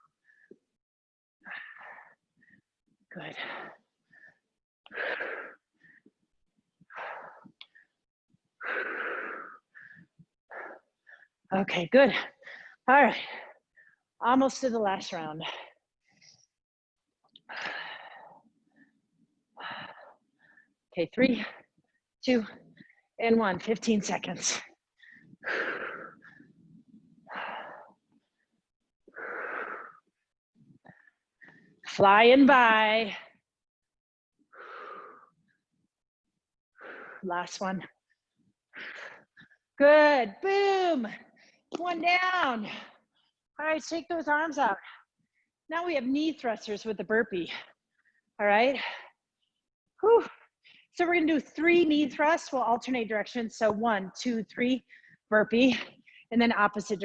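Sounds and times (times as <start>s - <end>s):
person breathing hard: 3.4s - 6.2s, 8.6s - 11.4s, 25.0s - 26.6s, 29.1s - 30.2s, 34.5s - 35.5s.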